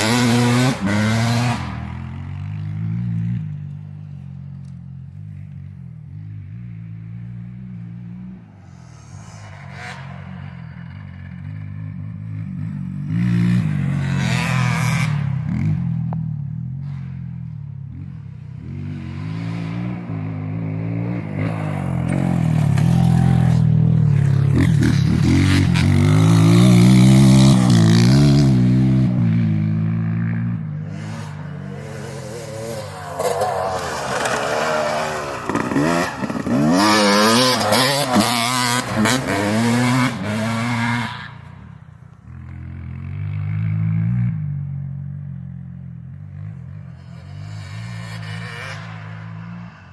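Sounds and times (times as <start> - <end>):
dirt bike engine revving: 0.0 - 3.4, 9.5 - 16.0, 18.1 - 41.7, 46.1 - 49.9.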